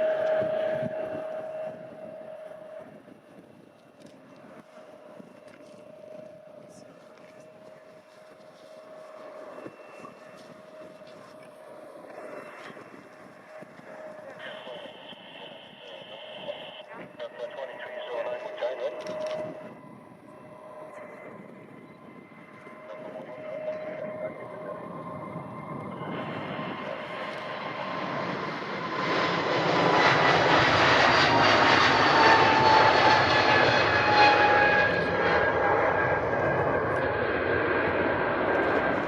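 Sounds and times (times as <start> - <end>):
airliner engines passing: 0.0 - 39.0.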